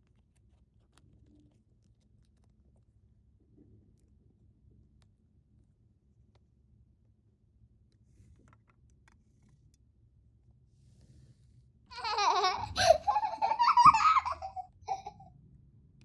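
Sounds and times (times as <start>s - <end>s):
high-pitched voice giggling: 12.0s - 15.2s.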